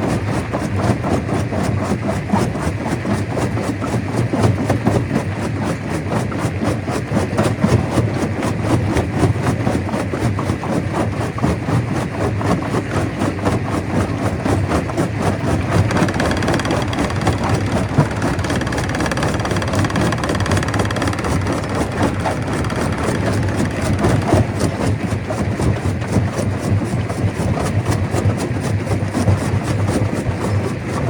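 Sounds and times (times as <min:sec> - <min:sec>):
stone crusher rattling: 0:15.6 - 0:24.9.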